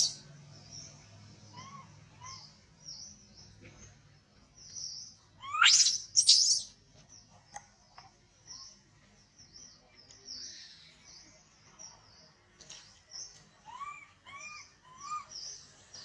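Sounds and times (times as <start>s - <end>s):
small birds chirping: 0.0s - 16.0s
shrill rising bird calls: 5.4s - 6.7s.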